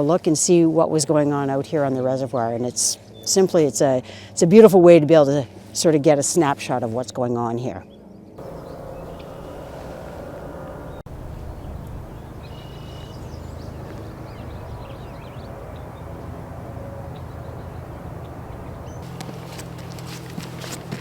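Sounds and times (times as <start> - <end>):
bird chirps: 8.4 - 16.1
outdoor rushing noise: 8.4 - 21.0
clicking footsteps: 19.0 - 21.0.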